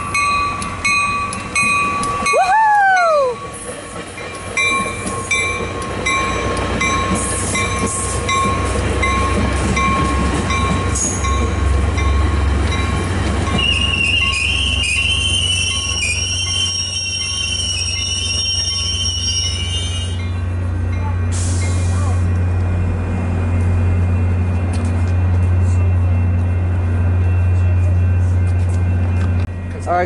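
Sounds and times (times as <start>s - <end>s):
train rumble: 0.0s - 30.0s
high rising and falling whoop: 2.2s - 3.4s
warning bell ringing: 4.2s - 21.2s.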